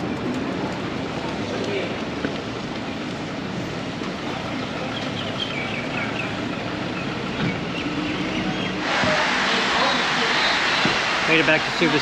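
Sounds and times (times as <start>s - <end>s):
road noise: 0.0s - 12.0s
bird chirping: 4.8s - 8.8s.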